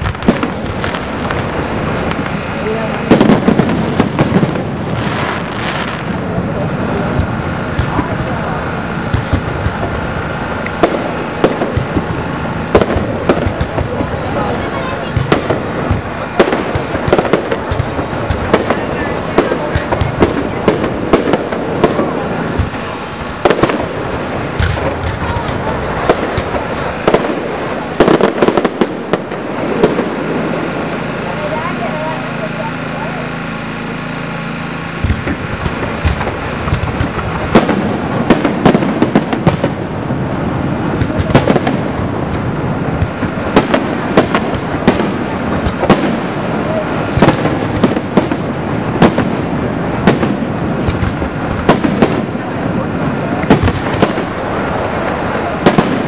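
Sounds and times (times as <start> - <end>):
firework shell bursts: 0.0 - 56.0
fireworks crackling: 0.0 - 56.0.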